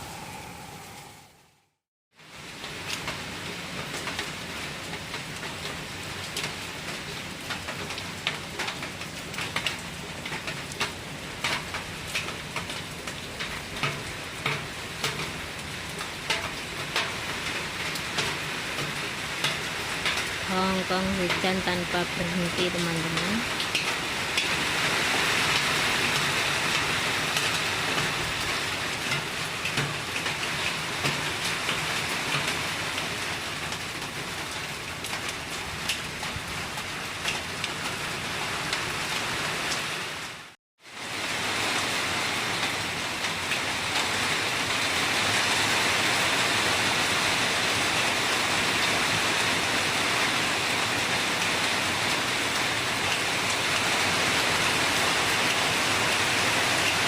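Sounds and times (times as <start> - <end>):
heavy rain: 0.0 - 57.0
rain drop ticks: 2.6 - 24.8, 25.5 - 38.0.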